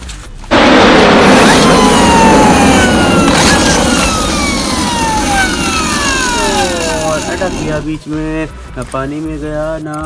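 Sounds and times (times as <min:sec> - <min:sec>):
toy motor whirring: 0:01.3 - 0:07.8.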